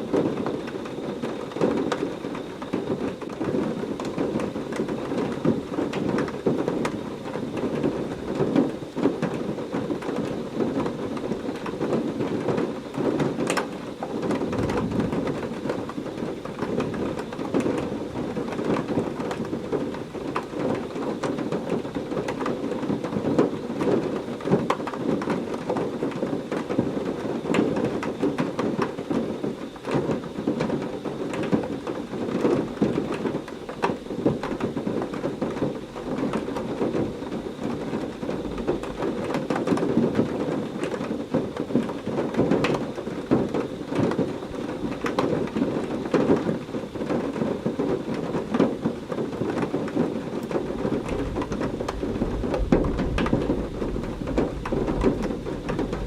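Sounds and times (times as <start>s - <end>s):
low rumble of thunder: 14.2s - 20.8s, 50.4s - 56.0s
heavy rain falling: 31.4s - 56.0s.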